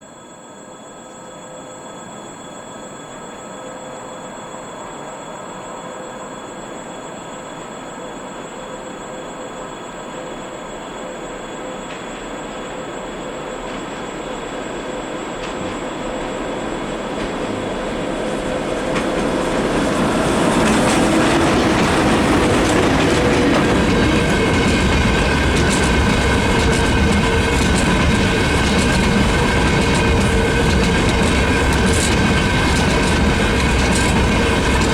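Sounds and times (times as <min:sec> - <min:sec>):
electric locomotive whine: 0:00.0 - 0:34.9
train wagons rumbling on rails: 0:10.3 - 0:34.9.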